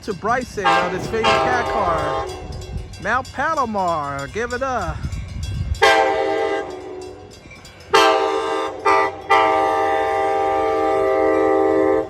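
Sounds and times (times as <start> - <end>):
locomotive air horn blasts: 0.6 - 2.6, 5.8 - 7.2, 7.9 - 12.0.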